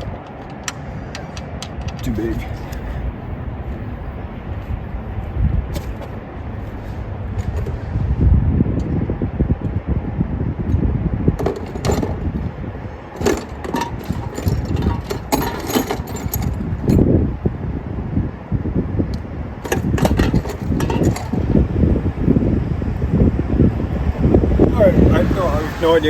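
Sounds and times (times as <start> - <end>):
low rumble: 1.7 - 25.8
metal sockets clinking: 11.4 - 12.3, 13.2 - 17.1, 19.6 - 21.5.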